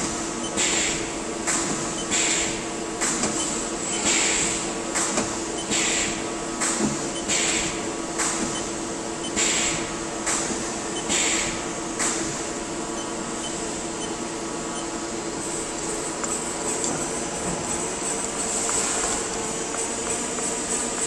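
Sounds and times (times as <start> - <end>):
lathe machine hum: 13.7 - 21.0.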